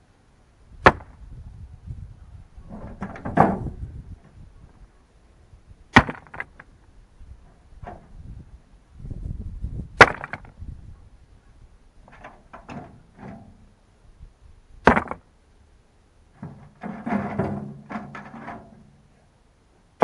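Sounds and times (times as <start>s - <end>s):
sharp knocks: 14.8s - 15.2s
scraping and rustling: 16.3s - 19.2s.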